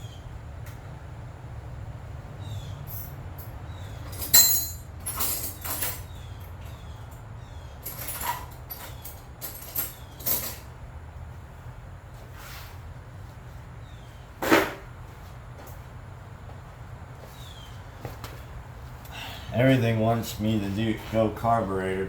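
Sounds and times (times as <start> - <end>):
steady low hum: 0.0 - 22.0
tools and metal parts clattering: 2.8 - 10.8.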